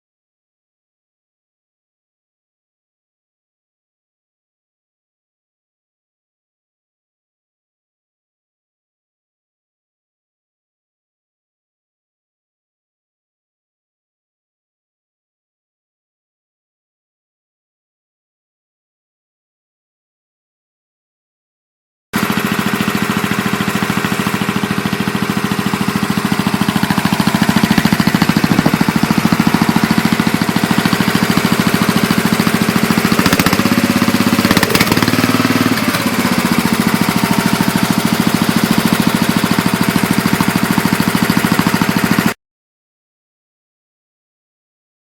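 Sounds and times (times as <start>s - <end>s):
tractor engine running: 22.2s - 42.4s.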